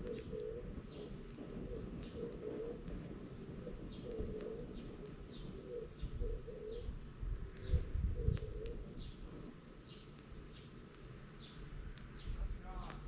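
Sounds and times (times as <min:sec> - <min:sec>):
dove cooing: 0:00.0 - 0:09.6
small bird chirping: 0:00.0 - 0:13.0.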